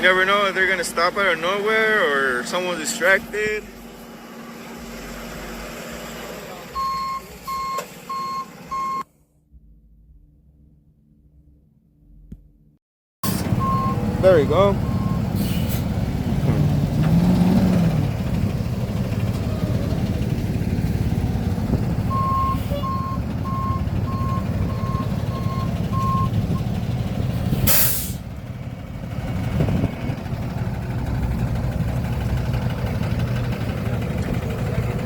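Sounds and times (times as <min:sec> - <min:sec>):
heavy truck engine running: 0:00.0 - 0:09.0, 0:13.2 - 0:35.0
reversing alarm beeping: 0:06.8 - 0:09.0, 0:13.2 - 0:15.3, 0:22.1 - 0:26.8
air brakes hissing: 0:14.9 - 0:16.0, 0:27.4 - 0:28.3.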